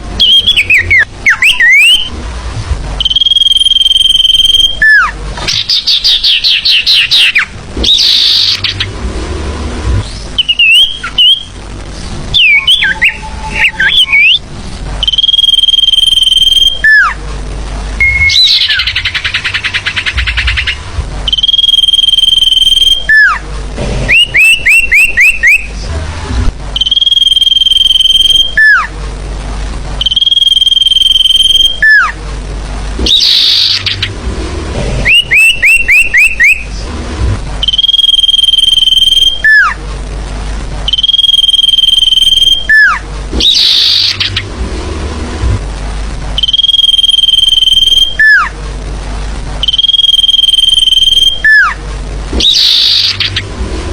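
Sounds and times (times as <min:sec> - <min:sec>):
whistled bird notes: 0:00.2 - 0:02.1, 0:03.0 - 0:08.9, 0:10.1 - 0:11.6, 0:12.3 - 0:14.4, 0:15.0 - 0:17.2, 0:18.0 - 0:23.4, 0:24.1 - 0:25.7, 0:33.0 - 0:34.1, 0:35.0 - 0:36.7, 0:40.9 - 0:44.4, 0:52.4 - 0:53.5
bird chattering trills: 0:03.0 - 0:08.9, 0:18.0 - 0:21.8
short rising bird chirps: 0:10.4 - 0:11.5.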